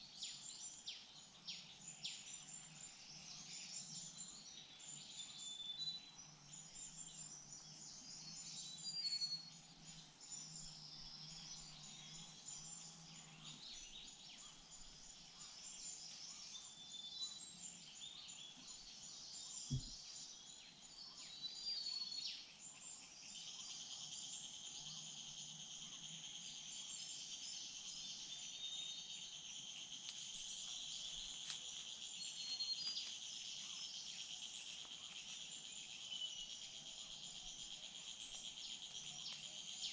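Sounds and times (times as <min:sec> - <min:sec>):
insects chirring: 0:00.0 - 0:39.9
small birds whistled calls: 0:00.0 - 0:39.9
steady insect drone: 0:00.0 - 0:39.9
low thump: 0:19.7 - 0:20.0.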